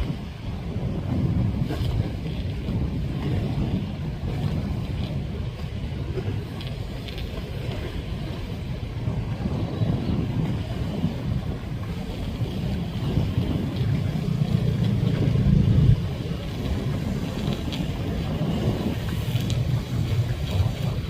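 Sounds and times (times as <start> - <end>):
boat engines rumbling: 0.0 - 21.0
wind on microphone: 0.0 - 21.0.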